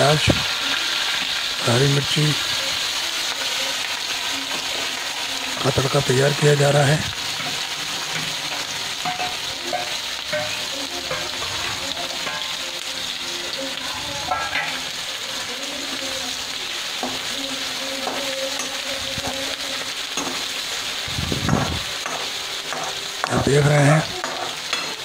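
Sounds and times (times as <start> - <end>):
vegetables sizzling in hot oil: 0.0 - 25.0
metal utensil scraping a pan: 4.4 - 16.1, 21.4 - 25.0.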